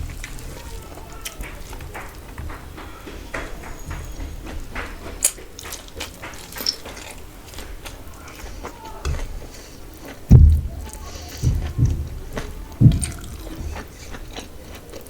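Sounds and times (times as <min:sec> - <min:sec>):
wet chewing and mouth clicks: 0:00.0 - 0:15.0
dull low thumps: 0:10.3 - 0:14.0.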